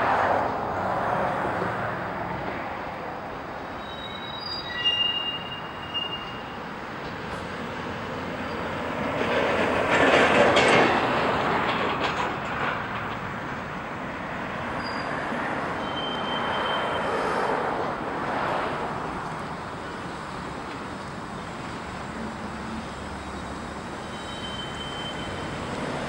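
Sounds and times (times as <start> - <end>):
railroad cars rolling on track: 0.0 - 26.0
wheel squeals: 3.8 - 6.6, 14.8 - 17.2, 23.7 - 26.0.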